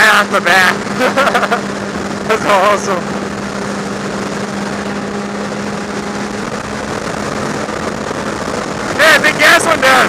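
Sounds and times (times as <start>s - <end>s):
motorcycle engine cruising: 0.0s - 10.0s
wind rush on microphone: 0.0s - 10.0s.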